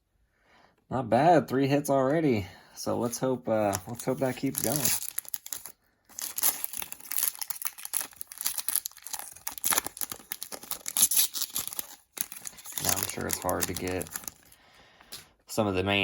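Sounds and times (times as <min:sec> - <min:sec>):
cards rustling and clicking: 0:03.0 - 0:15.3
wrapper crinkling and tearing: 0:03.6 - 0:15.2.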